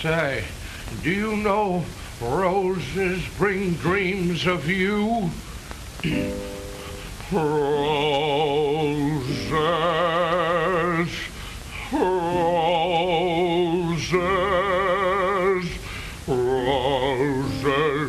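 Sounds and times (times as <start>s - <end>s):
person singing with vibrato: 0.9s - 18.0s.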